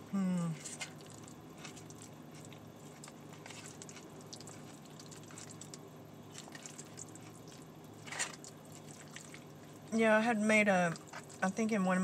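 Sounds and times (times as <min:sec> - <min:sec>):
chewing mouth clicks and smacks: 0:00.6 - 0:09.5.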